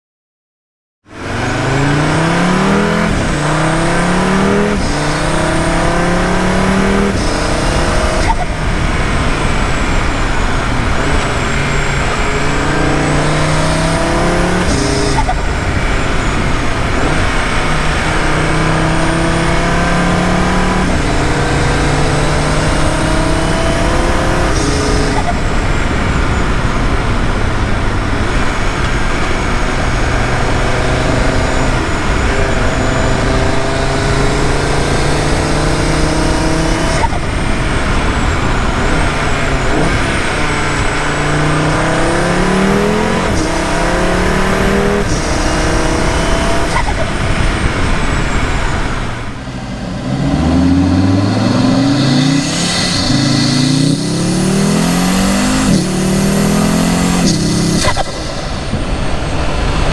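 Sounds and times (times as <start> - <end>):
car engine accelerating through gears: 1.1 - 59.9
turbo whistle: 46.6 - 47.2.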